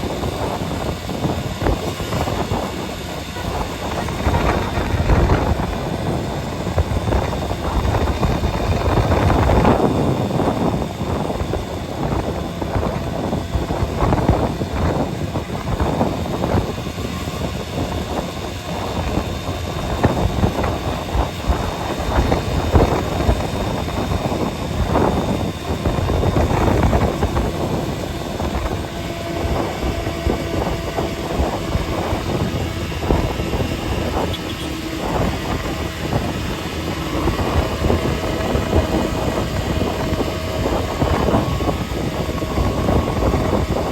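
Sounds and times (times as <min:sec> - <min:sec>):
vehicle engine and road noise: 0:00.0 - 0:43.9.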